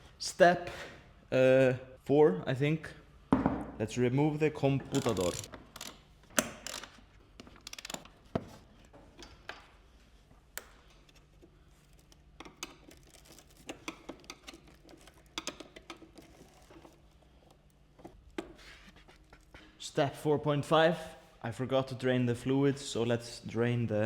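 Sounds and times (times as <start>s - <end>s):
tools tapping metal and plastic: 13.6s - 16.4s.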